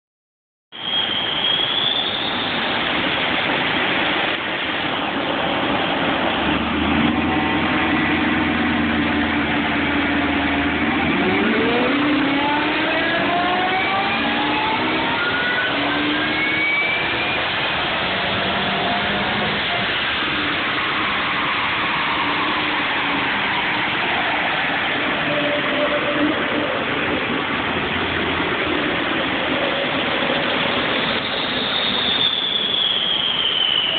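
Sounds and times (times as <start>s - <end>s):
dyno roller noise: 2.7s - 32.3s
car engine revving on dyno: 5.5s - 24.1s.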